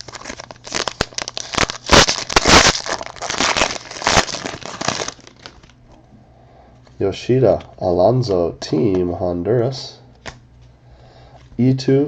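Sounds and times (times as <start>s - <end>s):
card pack wrapper crinkling: 0.0s - 5.8s.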